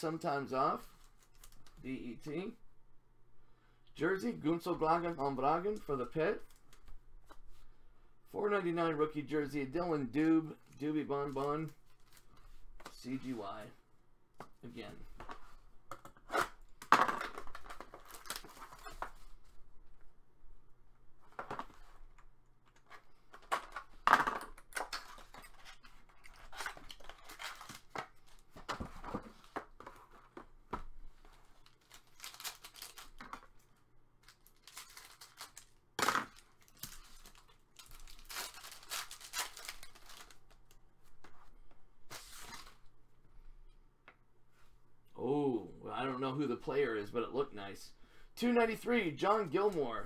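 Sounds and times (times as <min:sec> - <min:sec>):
cards and packaging rustling: 0:00.8 - 0:01.8, 0:10.1 - 0:13.7, 0:14.4 - 0:19.6, 0:21.2 - 0:42.9, 0:48.4 - 0:50.0
wrappers tearing and crinkling: 0:17.4 - 0:19.1, 0:24.6 - 0:28.4, 0:31.6 - 0:33.4, 0:34.2 - 0:40.7.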